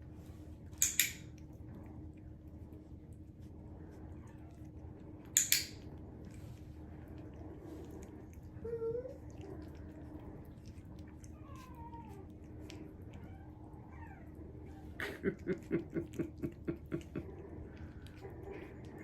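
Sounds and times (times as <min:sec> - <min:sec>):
dog whining: 0:08.6 - 0:09.8, 0:11.2 - 0:12.4.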